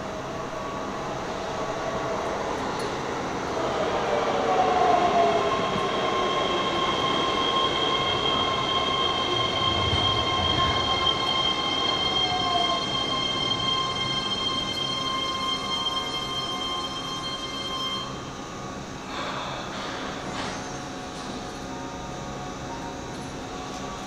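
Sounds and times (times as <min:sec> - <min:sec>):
electric train running: 0:00.1 - 0:18.3.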